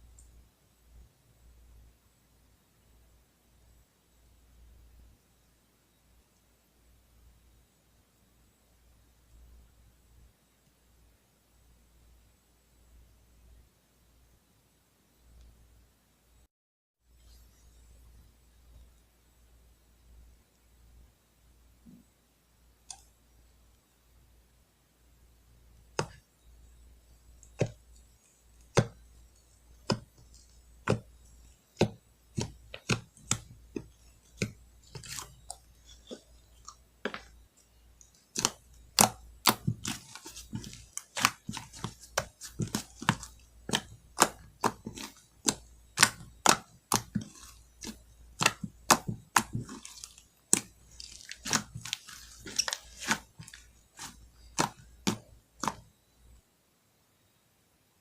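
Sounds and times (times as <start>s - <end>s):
sticky slime crackle: 28.6s - 37.4s, 38.0s - 55.9s.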